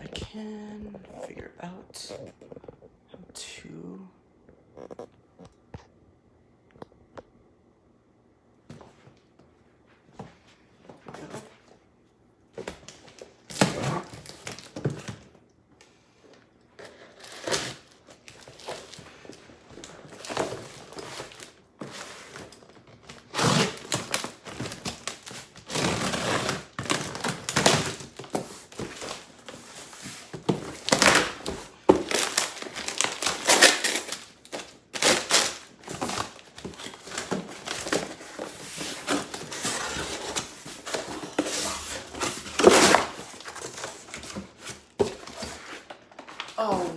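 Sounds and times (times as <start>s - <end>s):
packaging crinkling and tearing: 12.6s - 15.3s, 16.8s - 46.9s.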